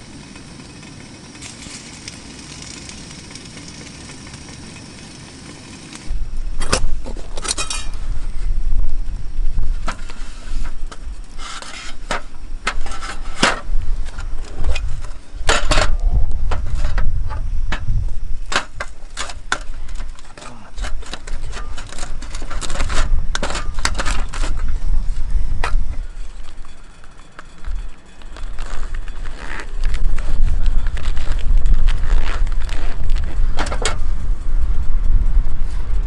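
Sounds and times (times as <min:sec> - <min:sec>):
low rumble: 0:00.0 - 0:11.4, 0:12.3 - 0:20.1, 0:27.6 - 0:36.0.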